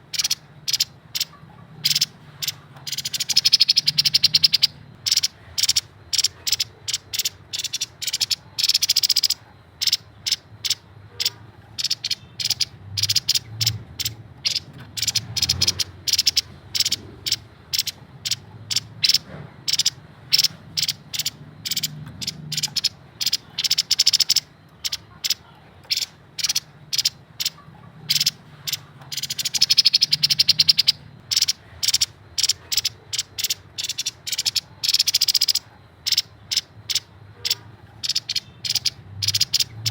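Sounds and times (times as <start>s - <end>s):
bird chattering rattles: 0.0s - 39.9s.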